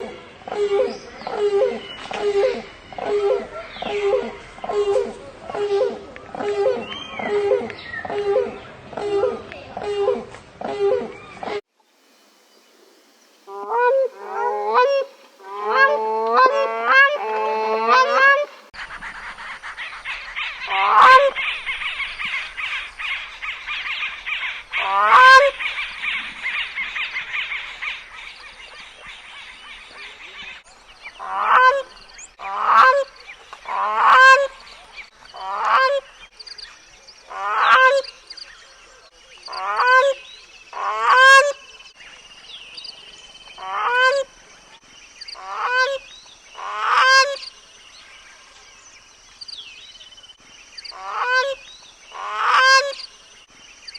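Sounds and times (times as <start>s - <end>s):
crane honking calls: 13.5s - 18.7s.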